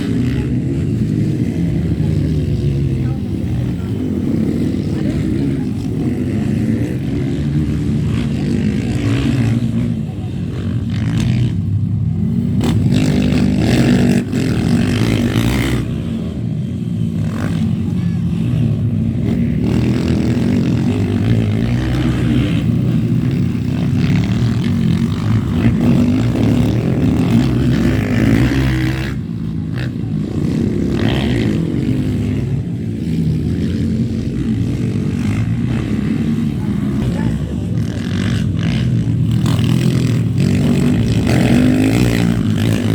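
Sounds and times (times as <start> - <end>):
motorcycle engines revving: 0.0 - 42.9.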